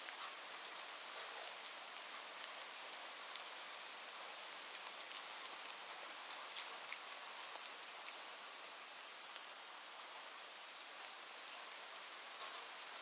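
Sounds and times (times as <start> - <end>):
raindrop ticks: 0.0 - 8.3, 12.3 - 12.8
steady rain: 0.0 - 13.0.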